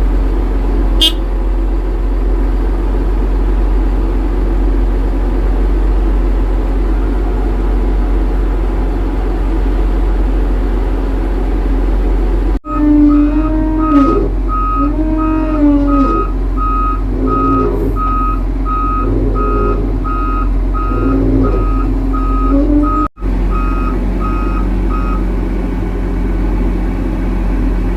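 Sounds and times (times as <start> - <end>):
diesel engine running: 0.0 - 27.9
reversing alarm beeping: 1.0 - 1.2, 12.7 - 25.3.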